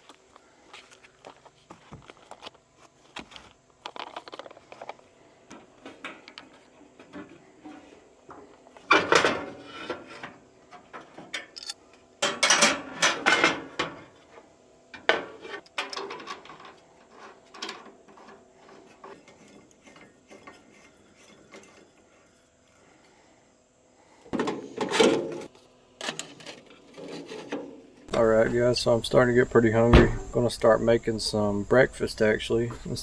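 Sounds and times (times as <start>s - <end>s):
handling clattering and clicking: 1.2s - 14.0s, 15.0s - 21.9s.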